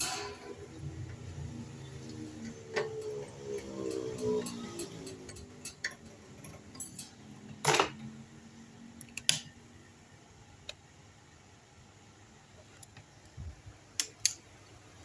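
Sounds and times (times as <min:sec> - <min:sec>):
metal scrape: 0:00.0 - 0:07.3
tools and metal parts clicking: 0:00.0 - 0:08.1.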